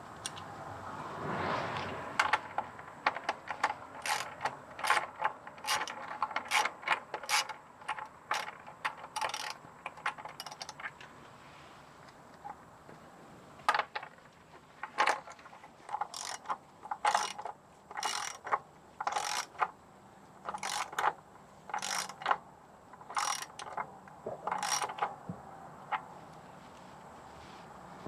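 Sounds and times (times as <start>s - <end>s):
ratchet wrench clicking: 2.2s - 10.8s, 15.9s - 19.7s, 20.5s - 22.4s, 23.0s - 23.8s, 24.4s - 25.1s.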